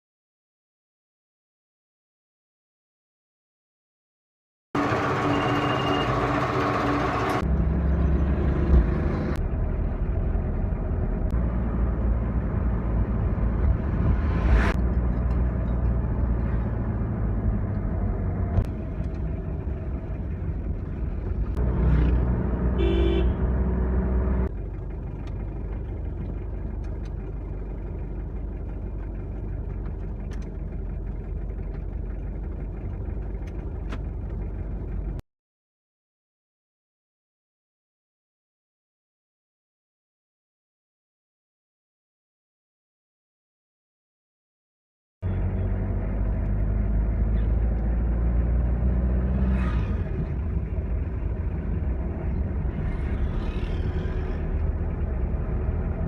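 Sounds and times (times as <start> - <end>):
vehicle engine and road noise: 4.8 - 35.2, 45.2 - 56.0
car horn toot: 22.8 - 23.5.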